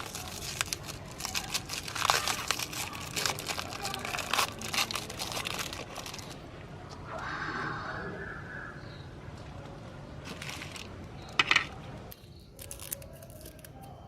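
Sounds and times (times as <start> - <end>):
hard candy crunching in grinder: 0.0 - 6.4, 12.6 - 13.8.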